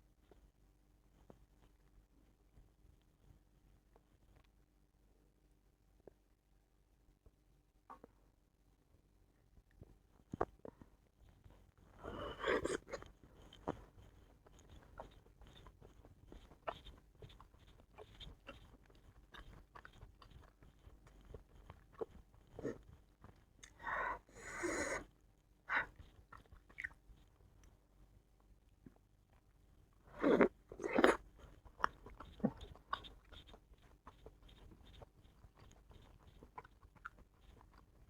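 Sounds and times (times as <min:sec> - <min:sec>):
chewing and biting food: 0:10.3 - 0:24.0, 0:25.1 - 0:27.7, 0:28.7 - 0:38.0.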